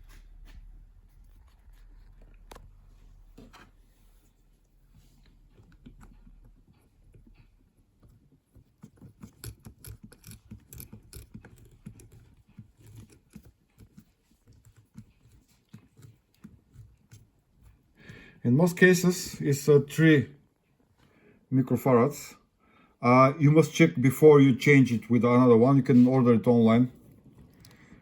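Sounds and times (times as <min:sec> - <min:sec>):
tools clicking and tapping on parts: 0:08.0 - 0:15.1.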